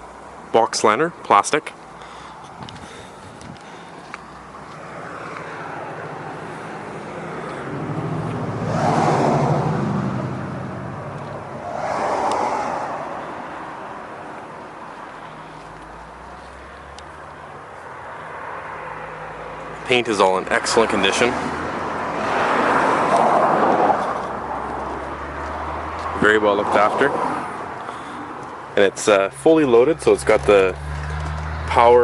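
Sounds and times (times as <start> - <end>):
vehicles passing: 0.0 - 32.0.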